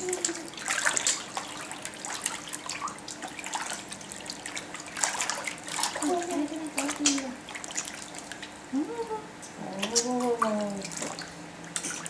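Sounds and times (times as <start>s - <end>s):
bathwater splashing and dripping: 0.0s - 8.7s, 9.6s - 12.0s.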